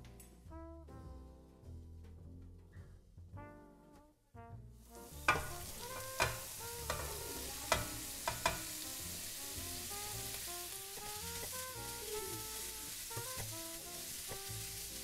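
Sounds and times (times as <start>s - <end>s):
vegetables sizzling in oil: 4.9s - 15.0s
spatula knocking on metal: 5.2s - 8.8s.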